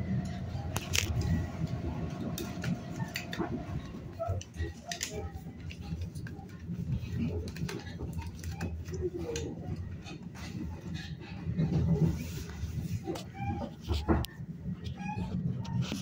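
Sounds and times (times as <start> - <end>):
sharp clicks and rattles: 0.0 - 12.2
train rumbling: 0.0 - 16.0.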